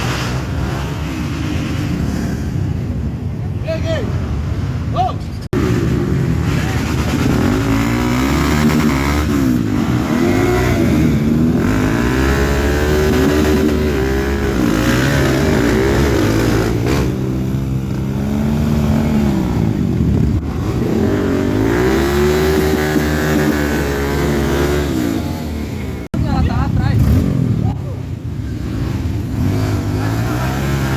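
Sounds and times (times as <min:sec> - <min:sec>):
motorcycle engines revving: 0:00.0 - 0:30.9.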